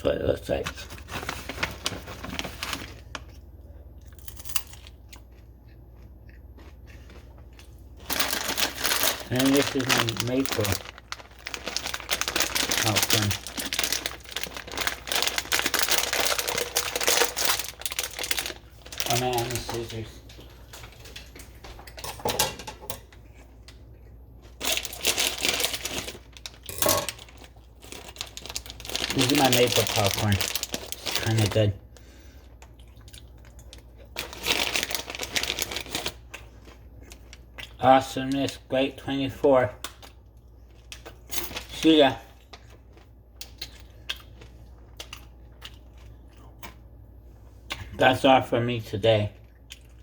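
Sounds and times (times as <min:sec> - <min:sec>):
plastic packaging crinkling: 0:00.5 - 0:03.4, 0:08.0 - 0:21.4, 0:24.4 - 0:31.7, 0:33.1 - 0:37.4, 0:40.8 - 0:43.1.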